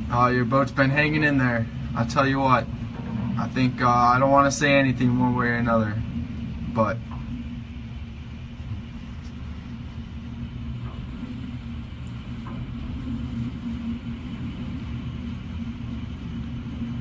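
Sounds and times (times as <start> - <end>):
hurricane wind against house: 0.0 - 17.0
low hum: 0.0 - 17.0.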